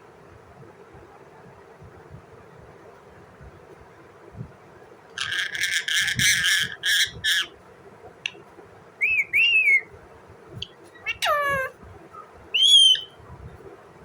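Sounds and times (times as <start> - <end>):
parrot rasping chatter: 5.2 - 7.5, 11.0 - 11.7
parrot whistles: 9.0 - 9.9, 12.5 - 13.2.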